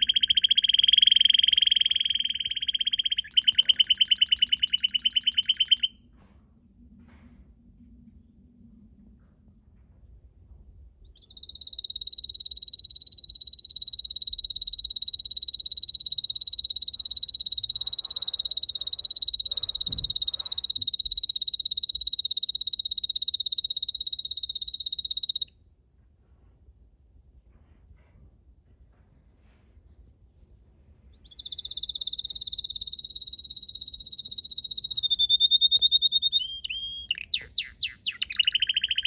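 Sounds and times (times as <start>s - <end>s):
canary singing rapid trill: 0.0s - 5.9s, 11.2s - 25.5s, 31.2s - 39.0s.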